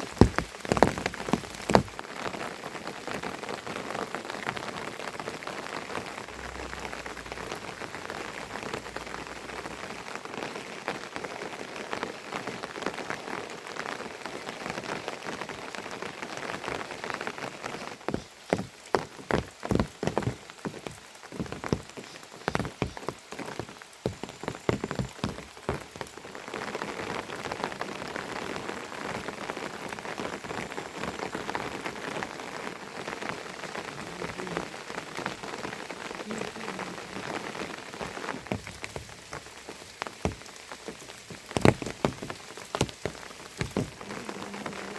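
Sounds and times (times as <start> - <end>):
steady rain falling: 0.0 - 44.9
sharp taps on hard surface: 41.4 - 44.1.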